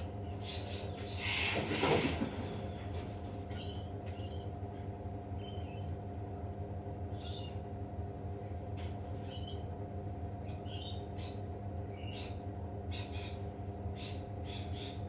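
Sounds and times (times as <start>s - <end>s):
birds chirping: 0.0s - 2.0s, 3.5s - 6.0s, 7.1s - 7.6s, 10.3s - 15.0s
low mechanical hum: 0.0s - 15.0s.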